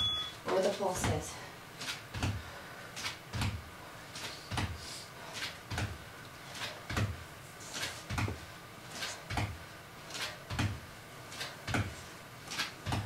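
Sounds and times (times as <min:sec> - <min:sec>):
feet thudding on floor: 0:02.1 - 0:02.5, 0:08.0 - 0:08.4.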